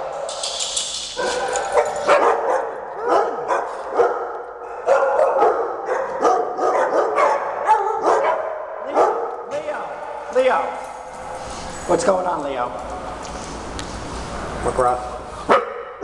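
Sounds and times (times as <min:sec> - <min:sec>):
dogs barking and whining: 0:00.0 - 0:09.4.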